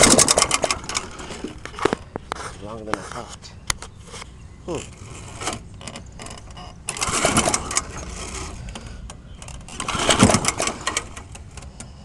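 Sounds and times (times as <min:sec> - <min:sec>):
lawnmower recoil starter pulled: 0:00.0 - 0:02.0, 0:04.8 - 0:11.9.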